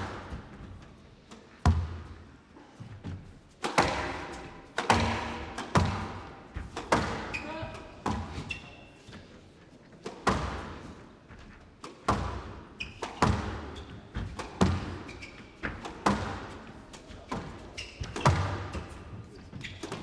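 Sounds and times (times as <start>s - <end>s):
court shoes squeaking: 2.8s - 20.0s
squash ball cracking off walls: 3.6s - 8.5s, 10.2s - 10.8s, 11.9s - 18.8s.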